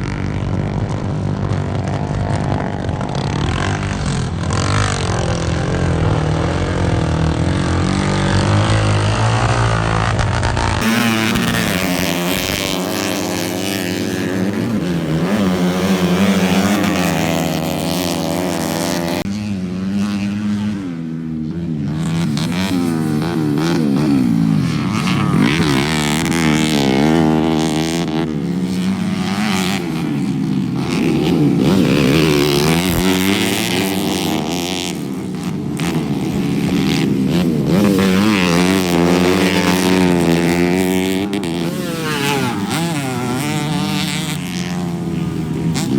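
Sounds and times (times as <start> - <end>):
motocross bike engines revving: 0.0 - 45.9.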